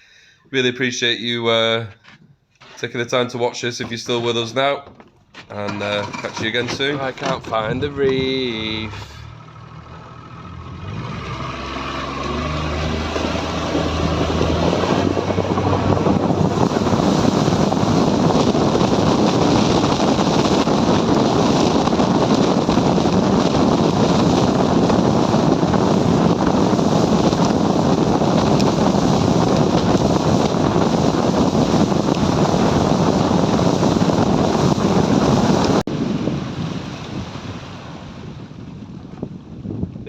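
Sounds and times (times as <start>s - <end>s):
water rushing: 3.8s - 19.0s
boat engine hum: 3.8s - 40.0s
wind on microphone: 4.1s - 40.0s.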